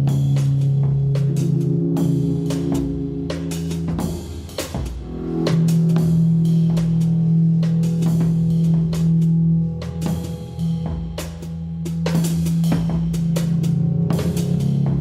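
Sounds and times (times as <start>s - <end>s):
live rock band playing: 0.0s - 11.5s
drum and cymbal hits: 0.0s - 15.0s.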